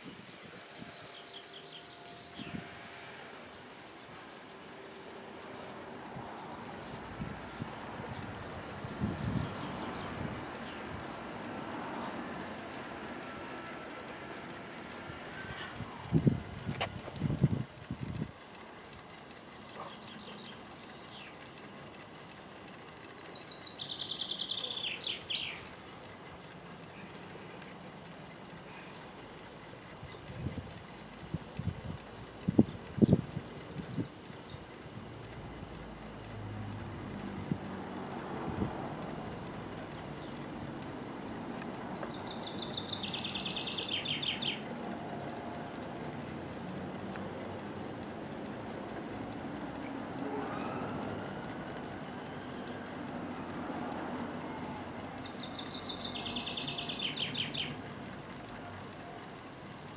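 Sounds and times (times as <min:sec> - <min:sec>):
outdoor background hiss: 0:00.0 - 0:59.9
steady background noise: 0:00.0 - 0:59.9
songbird singing: 0:00.2 - 0:02.7, 0:08.0 - 0:11.2, 0:19.5 - 0:21.4, 0:23.1 - 0:25.7, 0:39.8 - 0:40.5, 0:41.8 - 0:44.7, 0:54.4 - 0:57.8
bird trilling: 0:42.1 - 0:44.6.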